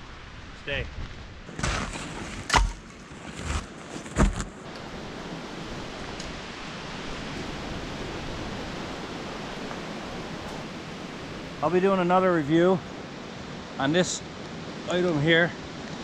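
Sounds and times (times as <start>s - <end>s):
wind rushing: 4.7s - 13.6s.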